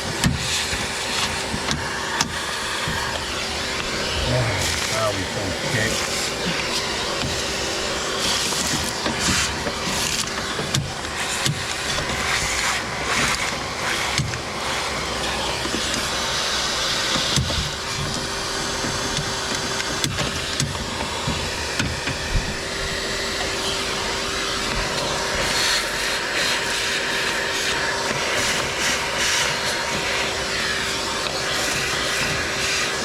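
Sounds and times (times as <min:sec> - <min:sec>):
machine hum: 0:01.3 - 0:11.4
even rushing sound: 0:03.2 - 0:06.2.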